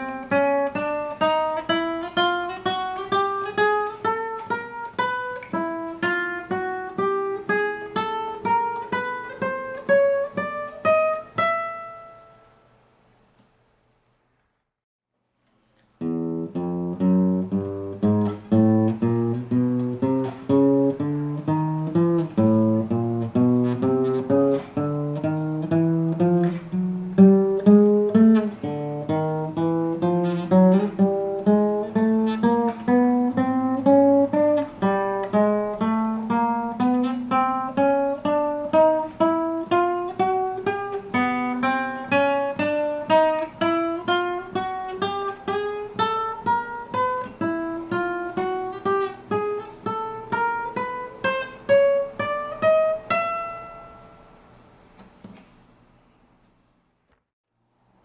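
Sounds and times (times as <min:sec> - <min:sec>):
acoustic guitar plucked notes: 0:00.0 - 0:12.6, 0:16.0 - 0:55.5.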